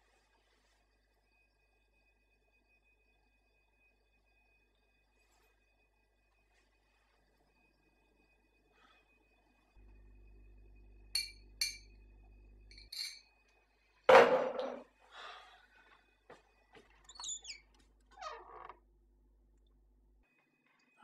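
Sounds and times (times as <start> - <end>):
household objects clinking: 12.7 - 13.2.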